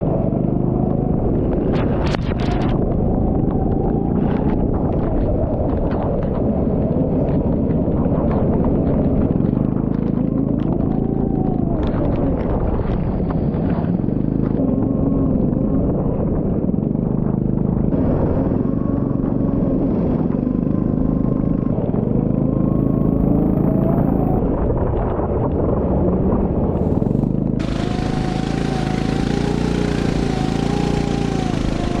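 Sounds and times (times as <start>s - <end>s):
heavy low rumble: 0.0s - 32.0s
go-kart engine revving: 26.7s - 32.0s.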